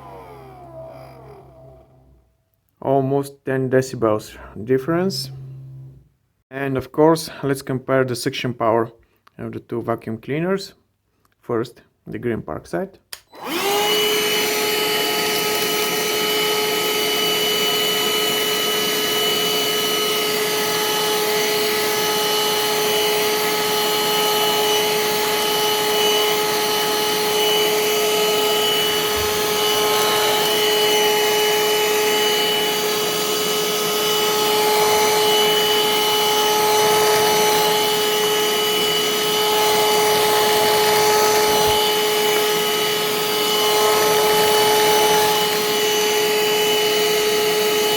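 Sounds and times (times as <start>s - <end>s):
vacuum cleaner motor whine: 0.0s - 2.3s, 5.2s - 6.1s, 13.3s - 47.9s.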